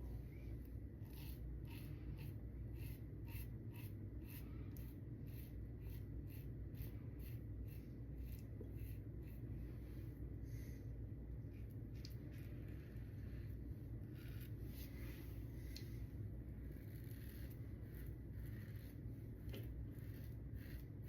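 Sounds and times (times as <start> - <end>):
razor scraping stubble: 1.0 - 9.4, 12.0 - 15.2, 16.6 - 21.0.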